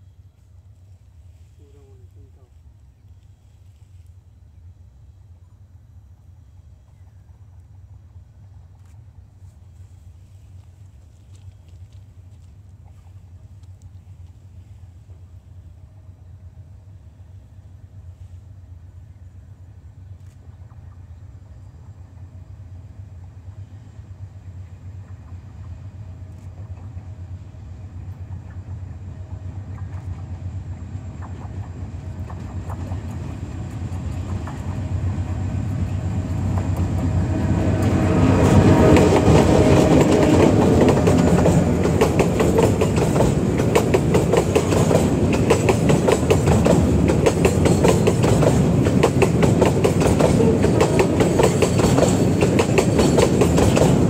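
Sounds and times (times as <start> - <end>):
locomotive drone: 0.0 - 54.0
train wheels clickety-clack: 24.5 - 54.0.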